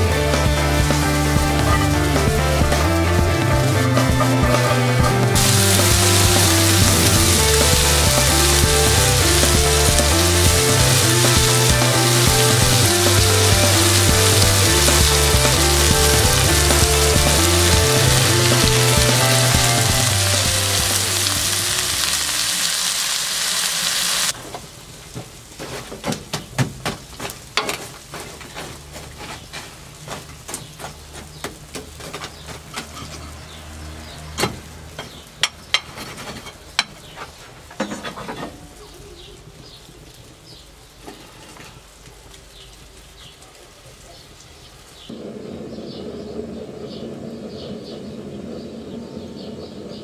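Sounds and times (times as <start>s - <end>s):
wood fire crackling and popping: 0.3s - 32.9s
sausage sizzling in a pan: 5.3s - 24.4s.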